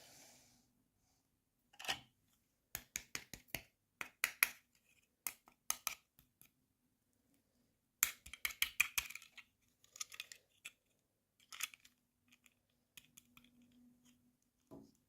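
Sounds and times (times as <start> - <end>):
plastic pieces clicking: 8.0 - 14.2.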